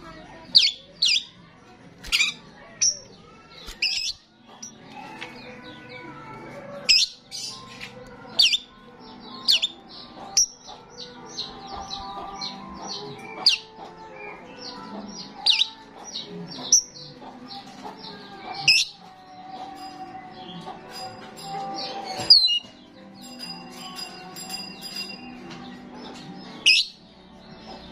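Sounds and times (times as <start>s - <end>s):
starling chirping: 2.0s - 4.8s, 8.3s - 19.0s, 20.5s - 27.9s.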